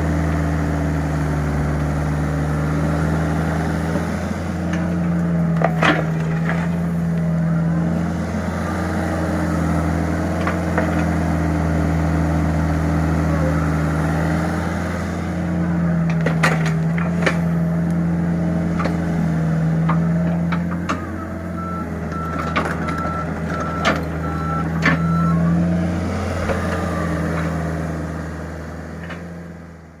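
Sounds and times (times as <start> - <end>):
diesel engine running: 0.0 - 30.0
reversing beeps: 21.0 - 25.6.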